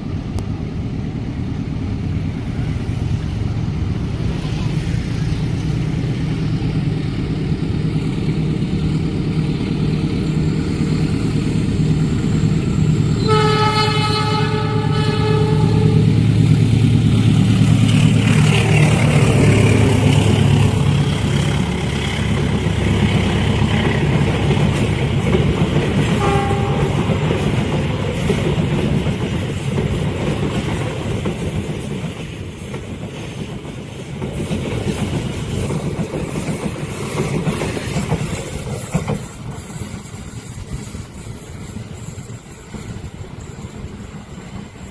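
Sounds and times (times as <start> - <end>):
train engine drone: 0.0 - 44.9
train horn: 13.1 - 16.2, 26.1 - 27.2
wheels rolling on rails: 14.6 - 44.9.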